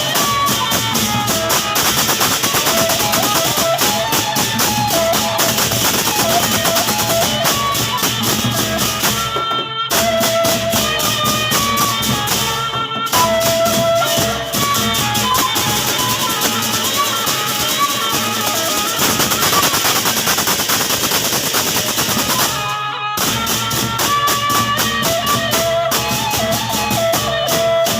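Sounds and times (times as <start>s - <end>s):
drums: 0.0s - 27.9s
fast cymbal strokes: 0.0s - 27.9s
held melody line: 0.0s - 27.9s.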